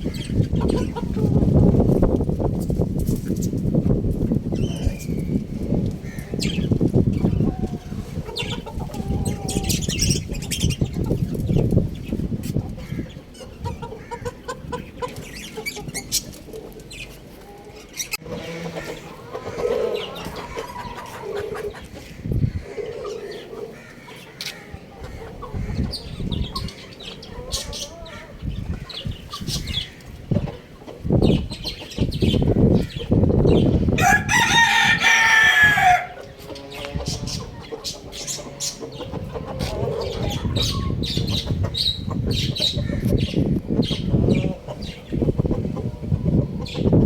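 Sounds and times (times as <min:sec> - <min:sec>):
chicken clucking: 0:00.1 - 0:02.0, 0:04.7 - 0:47.0
rooster crowing: 0:34.0 - 0:36.2.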